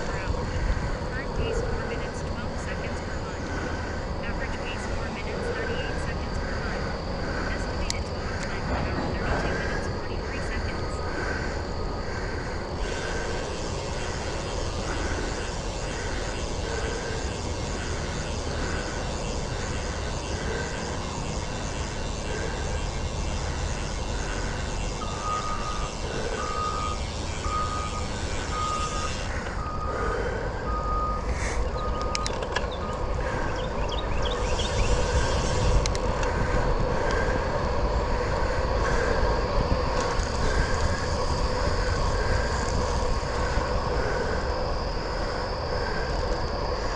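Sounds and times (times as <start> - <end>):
wind and wet tyre noise: 11.2 - 46.9.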